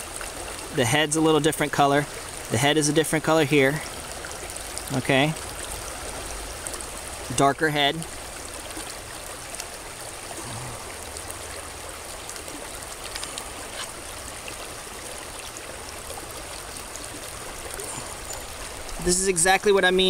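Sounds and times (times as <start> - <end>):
stream water flowing: 0.0 - 20.0
faint ticks: 13.0 - 14.0.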